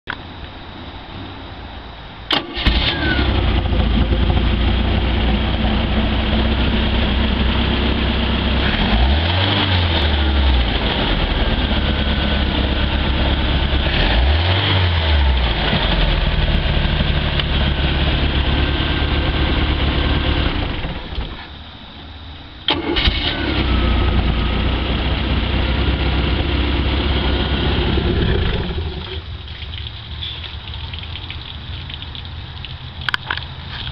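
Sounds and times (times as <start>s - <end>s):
boat engine starting and running: 2.3s - 21.4s, 22.6s - 30.5s.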